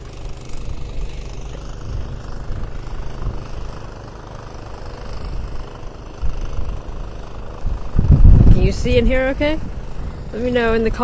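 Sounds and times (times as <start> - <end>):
wind buffeting microphone: 1.7 - 3.8, 5.1 - 11.0.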